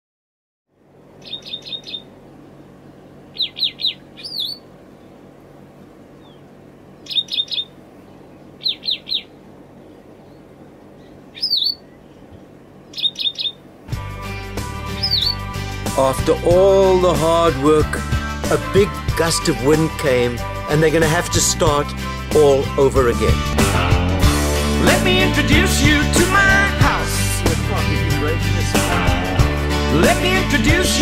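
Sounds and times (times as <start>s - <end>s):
songbird chirping: 1.1s - 2.2s, 2.8s - 5.3s, 6.0s - 15.5s
music: 13.9s - 31.0s
swooping whistle: 15.0s - 15.4s.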